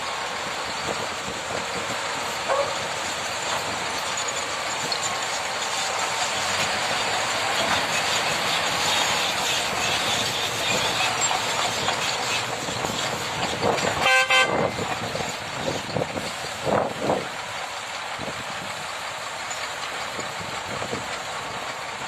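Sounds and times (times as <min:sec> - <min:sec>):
vehicle noise: 0:00.0 - 0:22.0
vehicle horn toot: 0:14.0 - 0:14.8.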